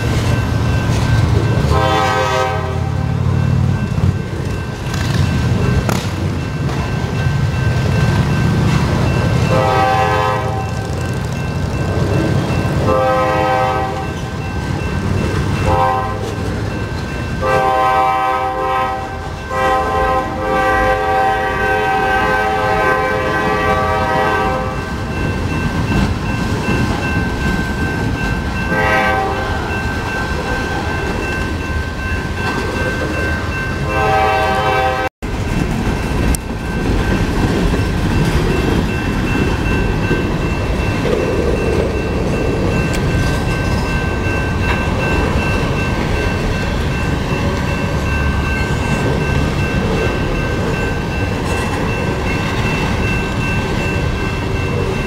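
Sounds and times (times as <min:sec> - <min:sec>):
freight cars rumbling and clacking: 0:00.0 - 0:17.7, 0:22.5 - 0:33.9, 0:35.2 - 0:55.0
locomotive air horn blasts: 0:01.7 - 0:03.2, 0:09.5 - 0:10.8, 0:12.8 - 0:14.1, 0:15.6 - 0:16.4, 0:17.4 - 0:24.8, 0:28.7 - 0:29.6, 0:33.8 - 0:35.1.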